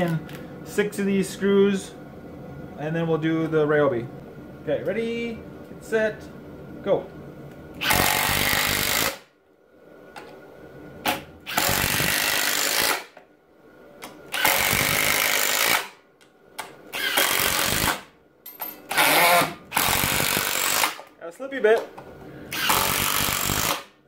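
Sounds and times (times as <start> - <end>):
impact driver hammering screws: 14.3 - 15.9, 17.0 - 18.0, 18.9 - 21.0, 22.5 - 23.9.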